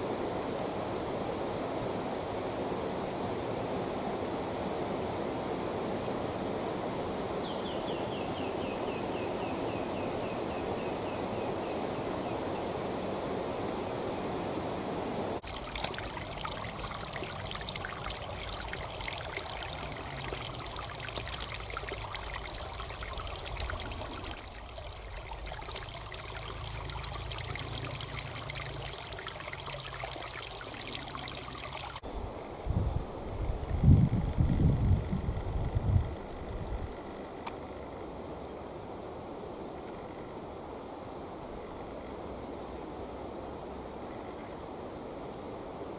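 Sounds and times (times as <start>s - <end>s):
creek water flowing over stones: 15.4s - 32.1s
water splashes: 15.4s - 32.1s.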